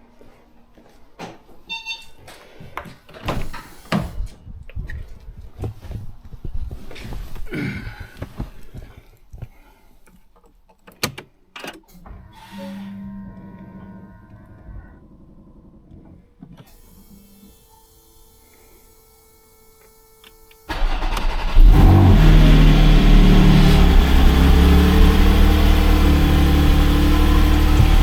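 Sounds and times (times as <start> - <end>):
steady hum: 21.6 - 28.0.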